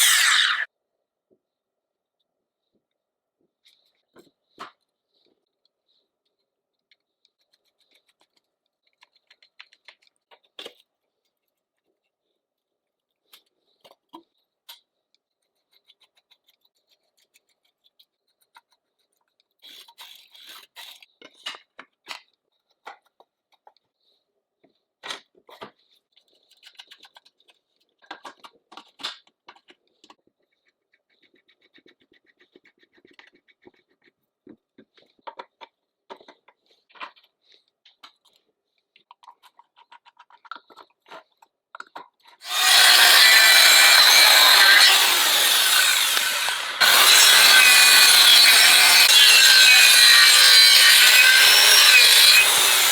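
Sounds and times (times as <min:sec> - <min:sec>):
rapid scraping on metal parts: 0:00.0 - 0:00.7, 0:42.4 - 0:52.9.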